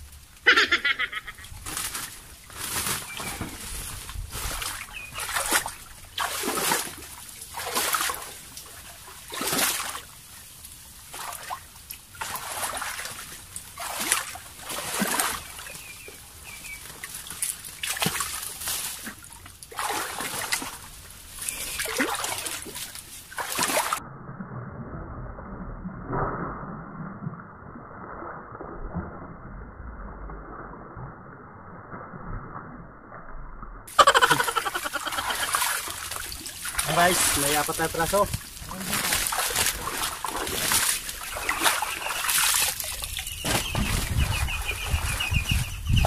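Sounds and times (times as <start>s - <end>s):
wading through shallow water: 1.0s - 24.0s, 33.9s - 46.0s.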